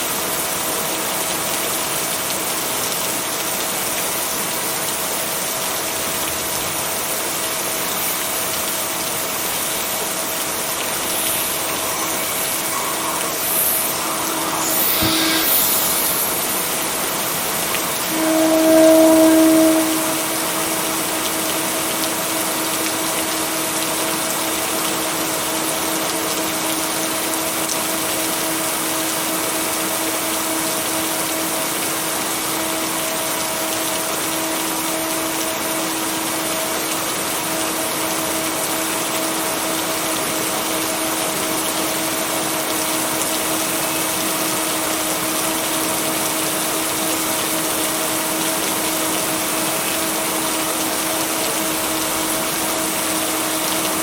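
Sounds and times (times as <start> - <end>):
rain hiss: 0.0 - 54.0
white noise: 7.6 - 21.9
low humming tones: 9.9 - 22.4.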